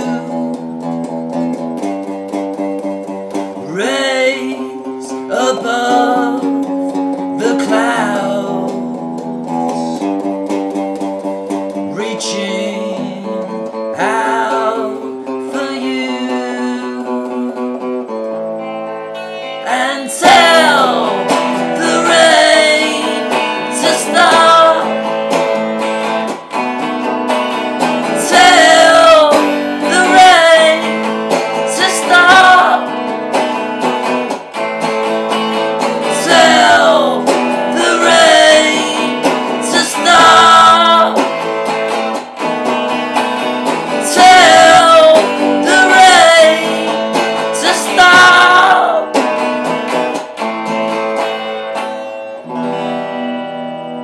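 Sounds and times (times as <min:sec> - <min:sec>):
person singing wordless phrases: 0:00.0 - 0:00.6, 0:03.6 - 0:10.2, 0:11.8 - 0:17.8, 0:19.6 - 0:25.1, 0:28.0 - 0:33.0, 0:36.0 - 0:41.4, 0:43.9 - 0:49.2
acoustic guitar playing: 0:00.0 - 0:54.0.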